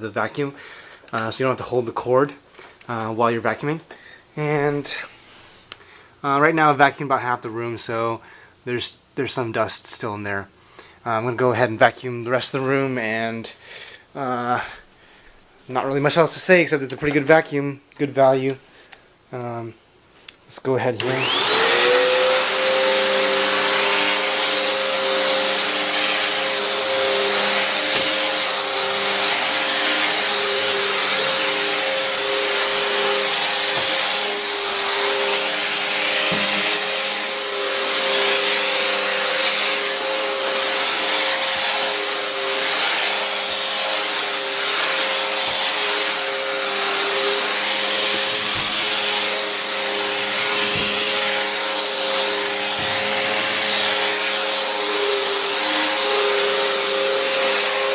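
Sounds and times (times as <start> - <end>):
vacuum cleaner running: 20.9 - 57.9.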